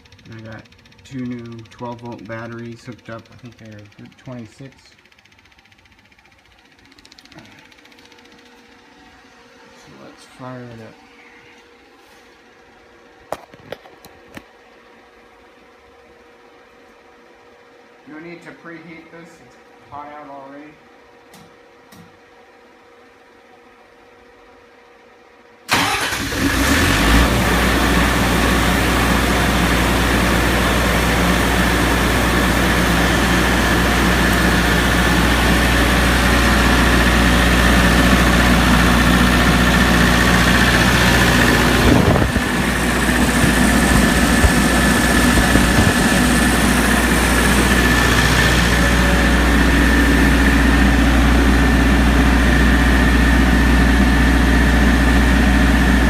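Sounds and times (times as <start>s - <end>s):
diesel generator engine running: 0.0s - 12.3s, 25.7s - 56.0s.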